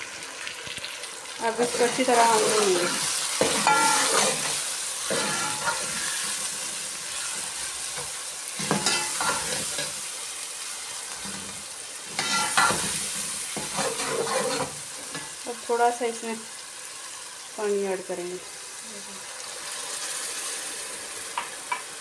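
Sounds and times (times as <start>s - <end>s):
food sizzling in a pot: 0.0s - 22.0s
metal spoon scraping pot: 2.8s - 6.2s, 13.6s - 14.8s.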